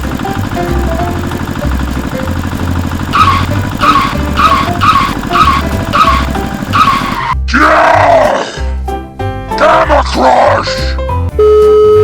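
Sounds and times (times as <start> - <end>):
electric motor buzzing: 0.0 - 7.3.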